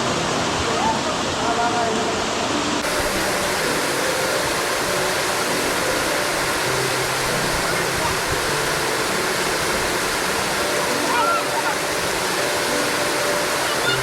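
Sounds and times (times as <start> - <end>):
rushing water: 0.0 - 14.0
faint voices: 10.5 - 12.3, 12.9 - 14.0.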